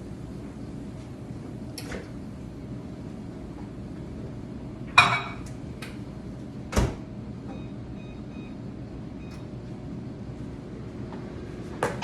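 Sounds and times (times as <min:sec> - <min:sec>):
dish clinking against microwave: 0:05.0 - 0:05.5
microwave door shutting: 0:06.7 - 0:07.1
keypad beeps: 0:07.5 - 0:08.6.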